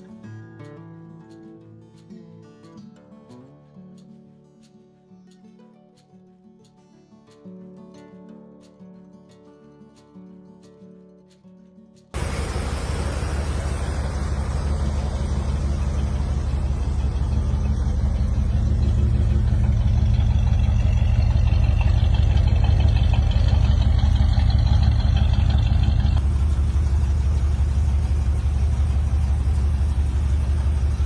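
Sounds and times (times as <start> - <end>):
car engine idling: 12.2 - 31.0.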